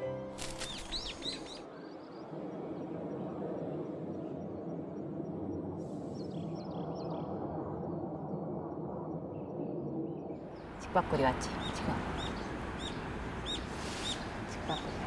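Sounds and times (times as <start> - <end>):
outdoor background noise: 0.0 - 15.0
high bird chirps: 0.4 - 2.2.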